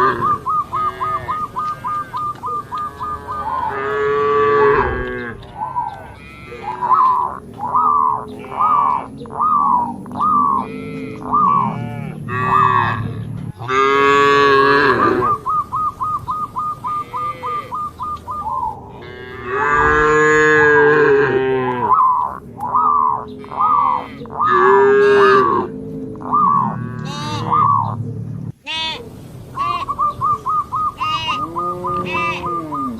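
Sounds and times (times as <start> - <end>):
cattle mooing: 0.0 - 9.1, 10.4 - 15.4, 16.9 - 17.8, 18.9 - 28.0, 31.0 - 32.9.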